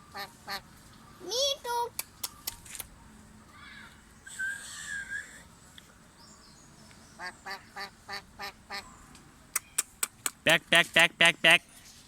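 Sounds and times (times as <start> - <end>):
duck quacking: 10.5 - 11.7.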